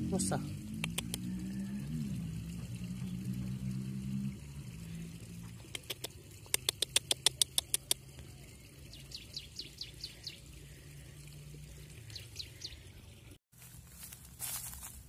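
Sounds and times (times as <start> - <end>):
bird rapid sharp ticks: 0.7 - 1.4, 5.6 - 8.2.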